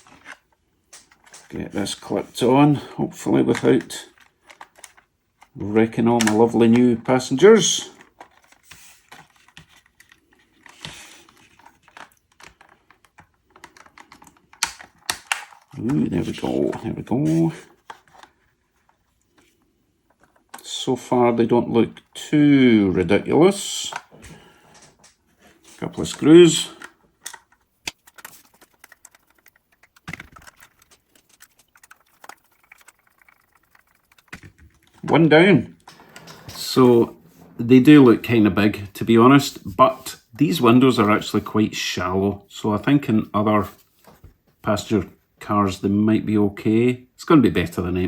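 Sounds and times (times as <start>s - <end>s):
plastic parts snapping into place: 11.9s - 15.8s.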